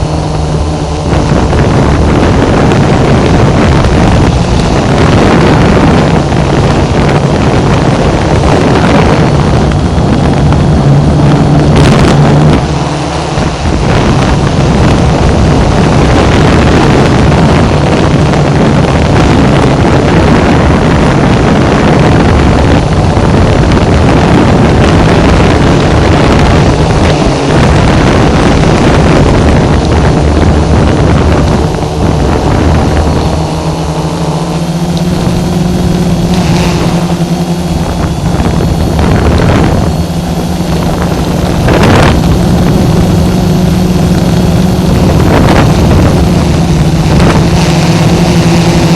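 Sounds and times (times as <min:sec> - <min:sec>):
drone propellers droning: 0:00.0 - 0:48.9
wind buffeting microphone: 0:00.0 - 0:48.9.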